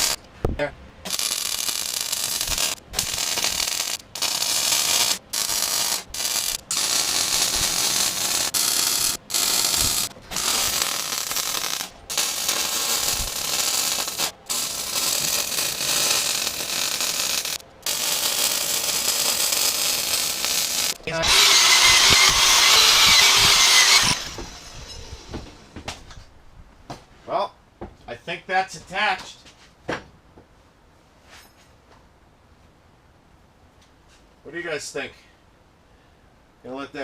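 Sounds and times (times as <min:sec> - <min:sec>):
arc welder crackling: 0:00.0 - 0:25.8.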